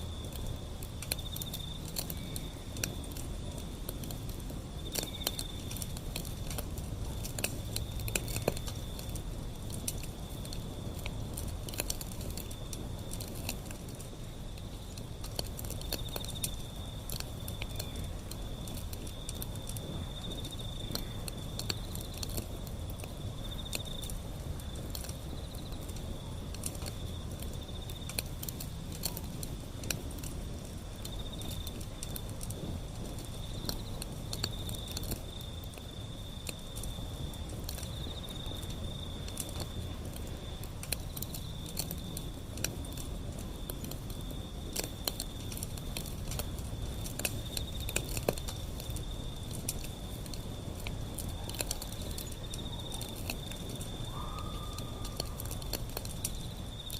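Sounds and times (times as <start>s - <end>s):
cricket chirping: 0.0s - 56.9s
wood fire crackling and popping: 0.0s - 56.9s.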